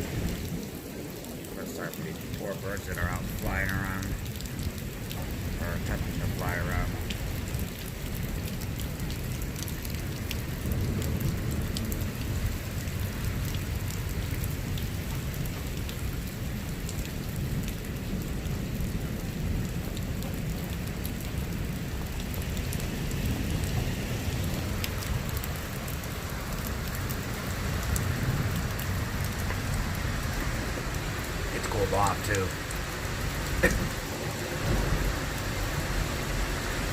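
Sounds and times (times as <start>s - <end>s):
continuous low rumble: 0.0s - 36.9s
steady rain falling: 0.0s - 36.9s.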